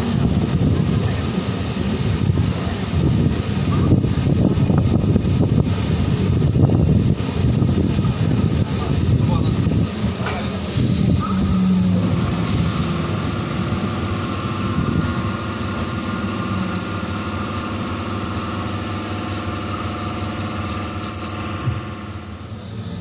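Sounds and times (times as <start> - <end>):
train running gear hum: 0.0 - 23.0
high wheel squeals: 10.8 - 23.0.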